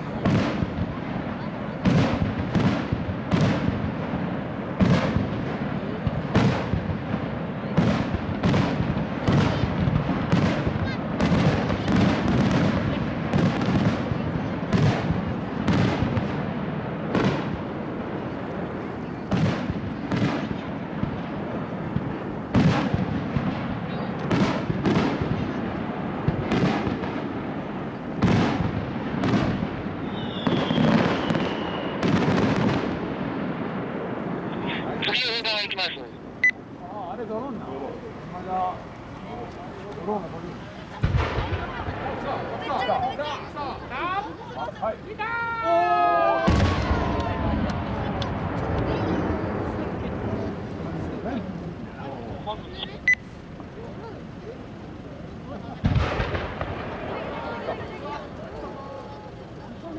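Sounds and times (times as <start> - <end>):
firework shells bursting: 14.8 - 45.0, 46.5 - 59.9
high falling whistle: 30.0 - 32.0
rumble and crackle: 46.6 - 59.9.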